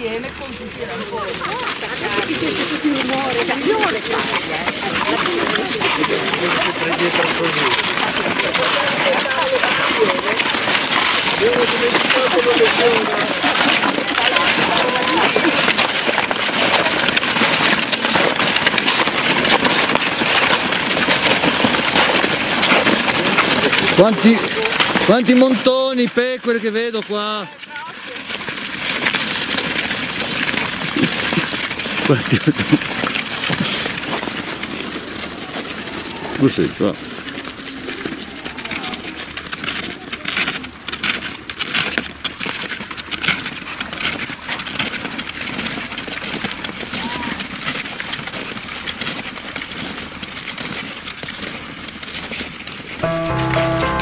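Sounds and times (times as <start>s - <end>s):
snowshoes crunching on snow: 0.0s - 25.3s
snowshoe footsteps crunching snow: 0.0s - 54.0s.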